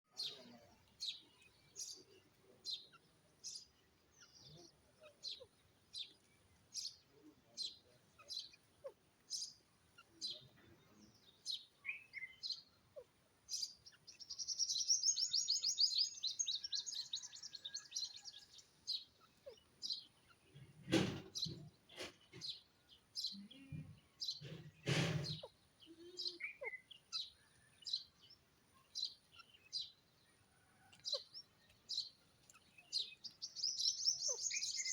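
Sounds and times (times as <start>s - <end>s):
francolin calling: 32.9s - 34.9s.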